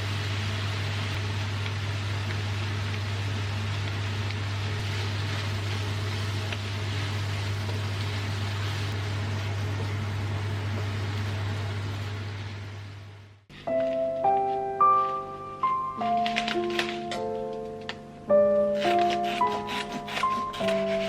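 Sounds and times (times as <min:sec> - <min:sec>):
low electric hum: 0:00.0 - 0:21.0.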